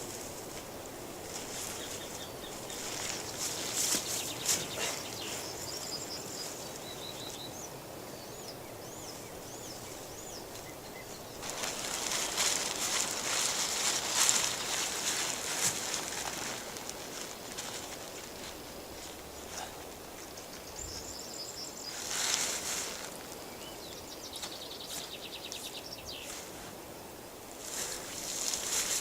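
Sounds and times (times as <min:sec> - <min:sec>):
rustling and crackling: 0:00.0 - 0:06.9, 0:11.4 - 0:21.1, 0:21.8 - 0:23.5, 0:27.6 - 0:29.0.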